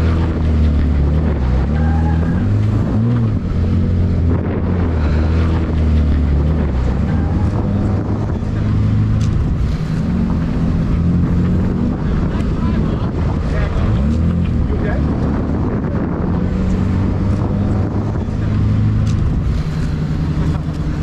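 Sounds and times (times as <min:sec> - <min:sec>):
vehicle engine humming: 0:00.0 - 0:21.0
wind buffeting microphone: 0:00.0 - 0:21.0.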